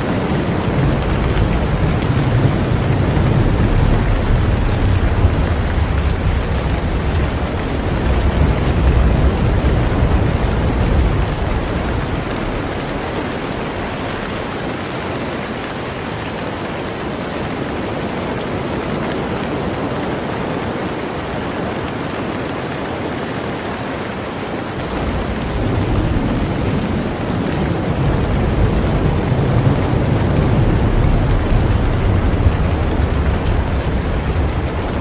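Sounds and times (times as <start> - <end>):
heavy rain on a boat: 0.0 - 35.0
low rumble: 0.4 - 14.5, 24.8 - 35.0.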